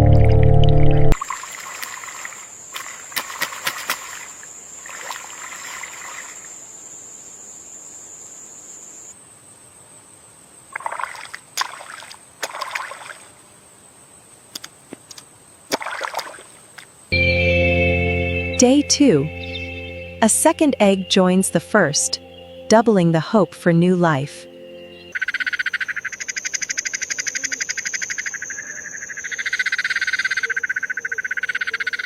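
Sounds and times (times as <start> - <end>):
water splashing and trickling: 0.0 - 6.6, 10.7 - 13.6, 14.6 - 17.1
thin high-pitched tone: 17.1 - 25.1.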